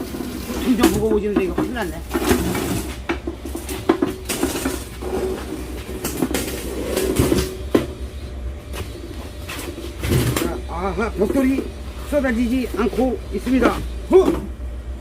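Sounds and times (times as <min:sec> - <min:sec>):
bricks knocking and scraping: 0:00.0 - 0:08.0.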